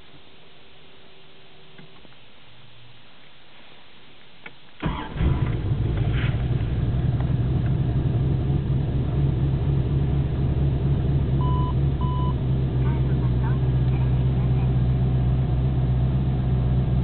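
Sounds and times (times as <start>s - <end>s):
car engine cranking and running: 4.8s - 17.0s
short electronic beep: 11.4s - 12.4s.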